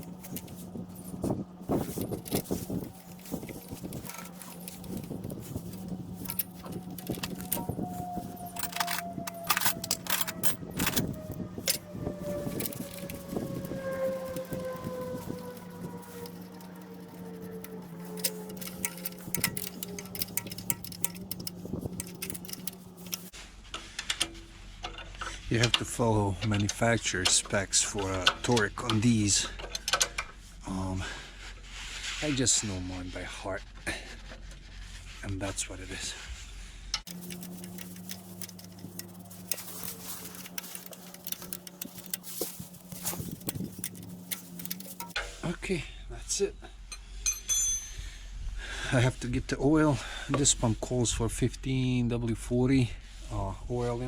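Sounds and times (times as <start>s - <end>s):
ratchet wrench clicking: 1.7s - 23.3s, 37.1s - 45.2s.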